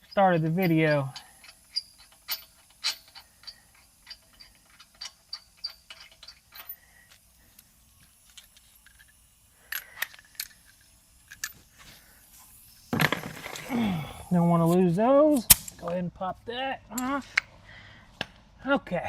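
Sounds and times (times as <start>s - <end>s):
socket ratchet clicking: 0.0s - 11.6s.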